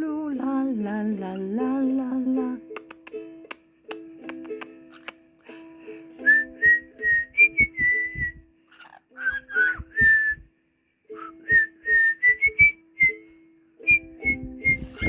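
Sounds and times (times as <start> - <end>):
plucked string notes: 0.0 - 8.4, 11.2 - 15.0
person whistling a melody: 6.2 - 8.4, 9.2 - 10.5, 11.2 - 15.0.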